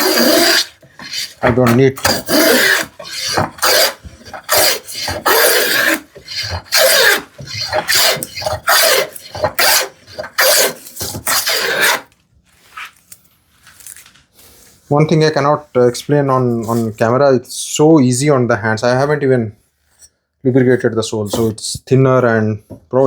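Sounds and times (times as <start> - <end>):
hand plane rasping on wood: 0.0 - 12.1.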